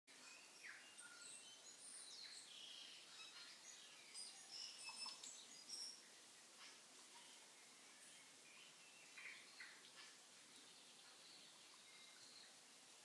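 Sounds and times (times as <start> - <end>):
birds chirping and whistling: 0.2 - 6.7
steady hiss: 0.2 - 13.0.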